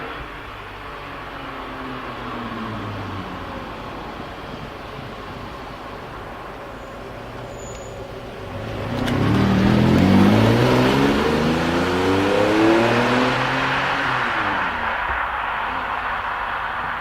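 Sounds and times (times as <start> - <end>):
sports car engine accelerating: 7.6 - 17.0.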